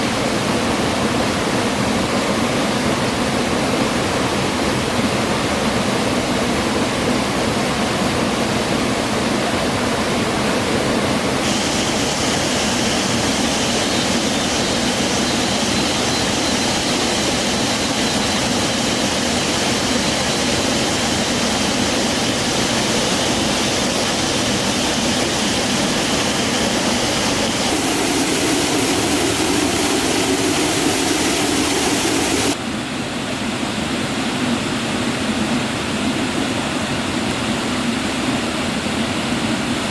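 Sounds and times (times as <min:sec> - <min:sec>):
rushing stream water: 0:10.0 - 0:32.6.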